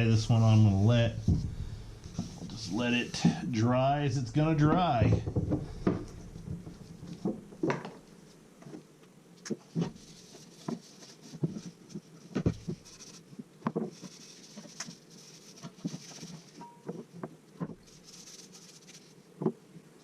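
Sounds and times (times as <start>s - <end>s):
rubbing hiss: 0.0s - 8.4s, 9.6s - 19.6s
light knocks and taps: 1.2s - 2.6s, 4.7s - 8.0s.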